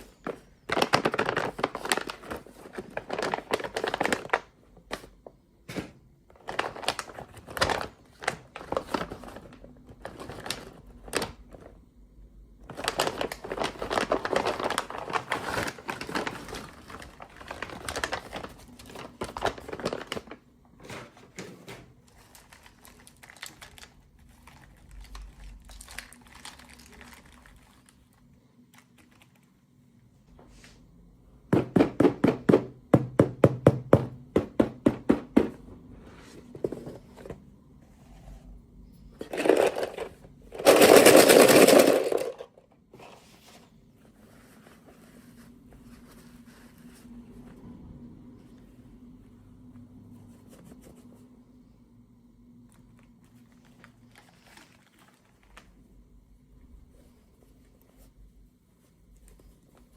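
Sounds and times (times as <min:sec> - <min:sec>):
toy packaging crinkling: 0:00.6 - 0:05.1, 0:06.4 - 0:11.7, 0:12.6 - 0:20.4, 0:22.1 - 0:29.5, 0:39.2 - 0:42.7, 0:52.9 - 0:55.8.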